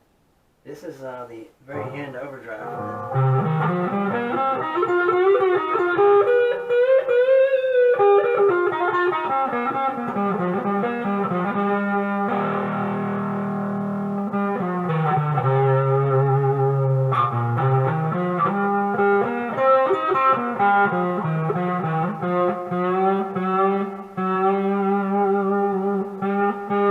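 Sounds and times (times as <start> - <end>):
overdriven electric guitar: 2.5 - 26.9.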